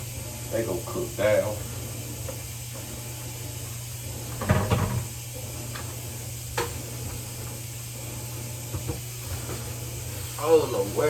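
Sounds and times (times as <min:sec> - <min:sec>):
clatter of kitchen knocks: 0:04.4 - 0:05.1.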